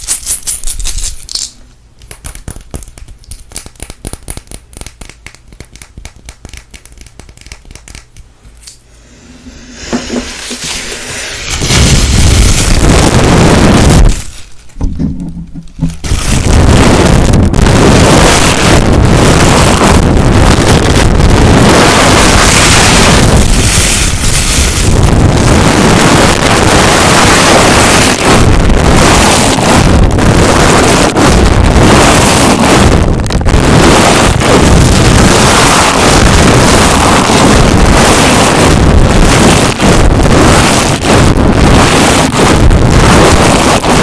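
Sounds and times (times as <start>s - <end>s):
rough friction on microphone: 9.0s - 20.0s.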